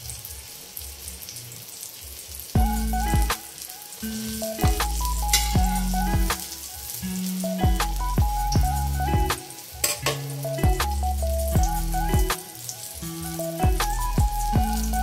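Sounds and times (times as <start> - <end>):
omelettes sizzling in oil: 0.0 - 15.0
background music with deep beat: 2.6 - 3.5, 4.2 - 15.0.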